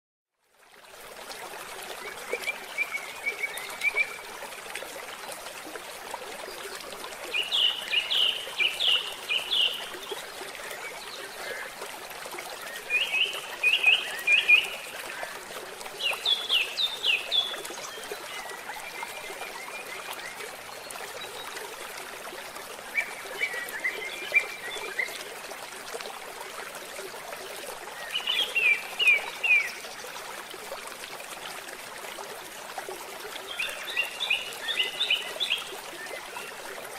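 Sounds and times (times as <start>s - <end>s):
songbird singing: 7.3s - 11.6s, 12.6s - 15.2s.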